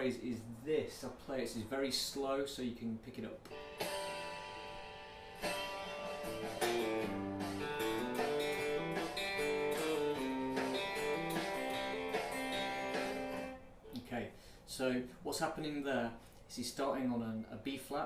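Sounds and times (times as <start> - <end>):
guitar playing slow lick: 3.5 - 14.0.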